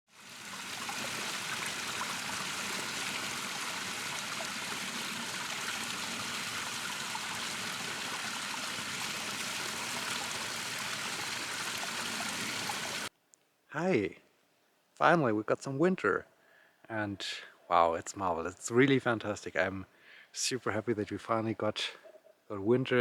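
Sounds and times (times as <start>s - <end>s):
stream rushing and trickling: 0.1s - 13.1s.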